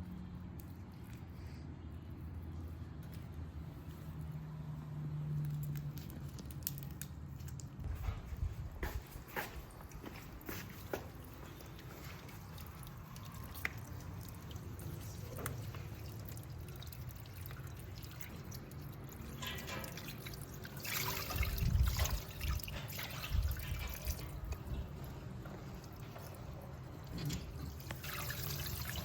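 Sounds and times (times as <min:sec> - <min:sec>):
water pouring and dripping: 0:09.4 - 0:29.0.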